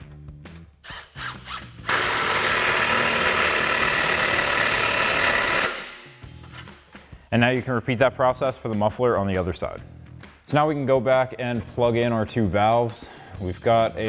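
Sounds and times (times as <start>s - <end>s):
cordless power tool running: 0.9s - 6.2s.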